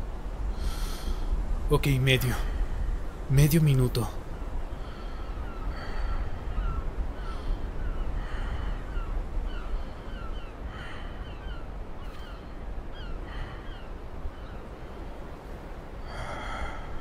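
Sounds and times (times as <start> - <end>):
birds calling in falling chirps: 3.3 - 15.8.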